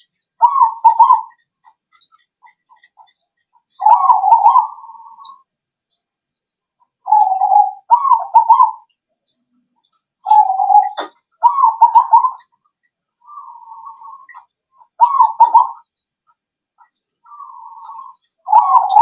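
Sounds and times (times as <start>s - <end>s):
dove trilled cooing: 0.0s - 1.5s, 3.7s - 5.5s, 7.0s - 8.9s, 10.2s - 12.5s, 13.2s - 15.9s, 17.2s - 19.0s.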